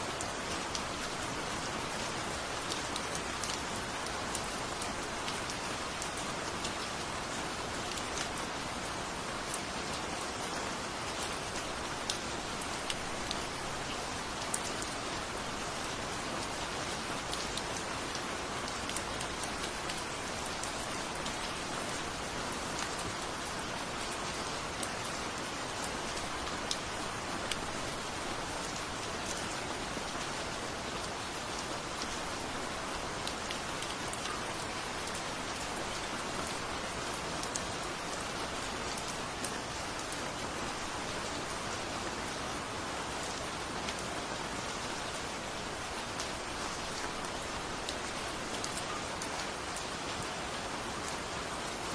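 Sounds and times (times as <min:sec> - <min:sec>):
steady rain hiss: 0:00.0 - 0:51.9
raindrops ticking on surface: 0:00.1 - 0:51.9.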